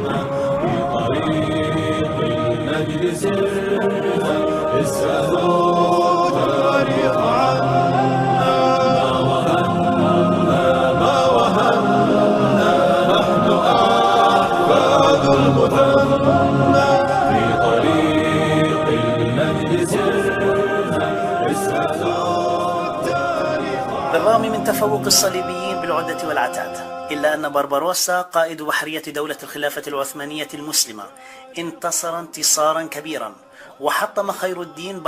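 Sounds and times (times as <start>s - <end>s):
choir singing a chant: 0.0s - 35.0s.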